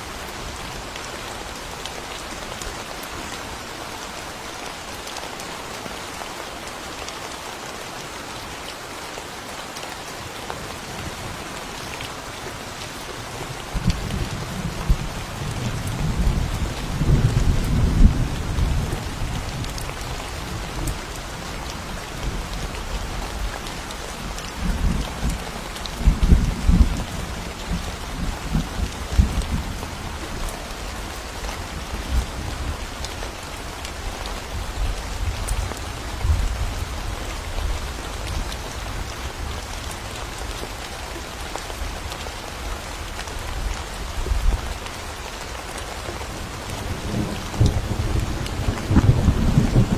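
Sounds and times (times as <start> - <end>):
steady rain falling: 0.0 - 49.9
thunder rolling: 47.1 - 49.9.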